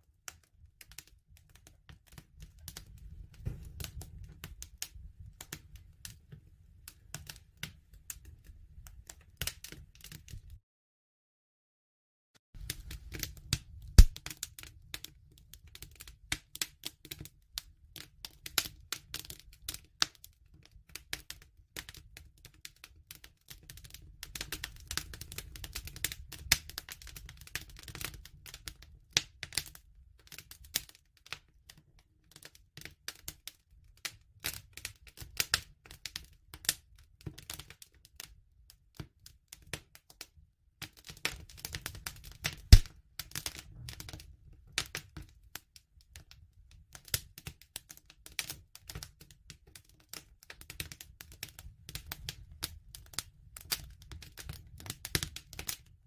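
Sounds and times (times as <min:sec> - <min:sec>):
wood fire crackling: 0:00.8 - 0:10.6, 0:12.6 - 0:31.5, 0:40.8 - 0:45.4, 0:47.0 - 0:55.9.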